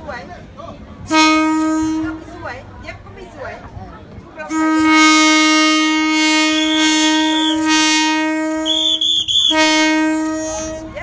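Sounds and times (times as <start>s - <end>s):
train horn blast: 1.0s - 2.4s, 4.4s - 11.0s.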